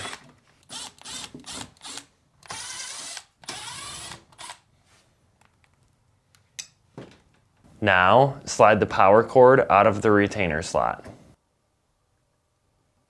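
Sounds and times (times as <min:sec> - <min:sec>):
screws being driven out: 0:00.0 - 0:04.6.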